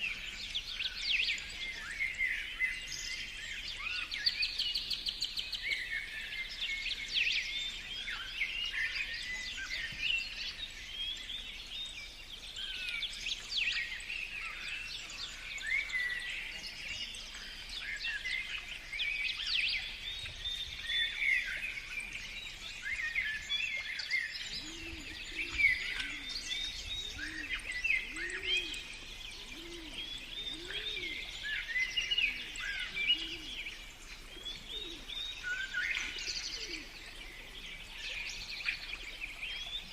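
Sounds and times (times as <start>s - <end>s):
songbirds chirping and singing: 0.0s - 39.9s
dove cooing: 24.6s - 26.4s, 27.0s - 28.8s, 29.4s - 31.3s.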